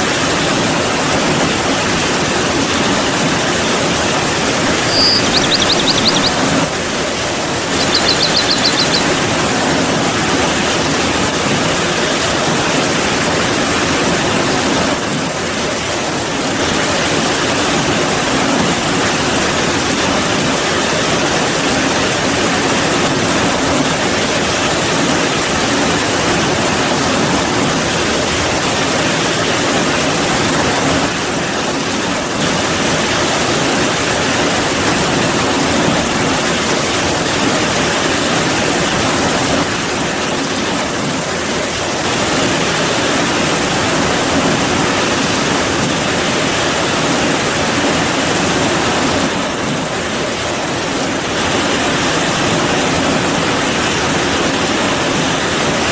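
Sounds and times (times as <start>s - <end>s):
heavy rain falling: 0.0s - 55.9s.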